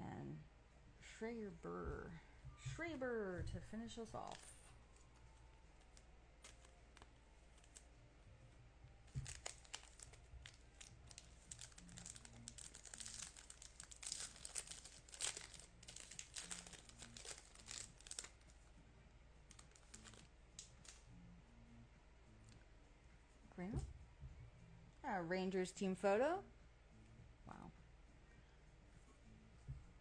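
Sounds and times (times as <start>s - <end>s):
wrapper crinkling and ripping: 4.2s - 8.0s, 8.9s - 18.5s, 19.4s - 21.0s.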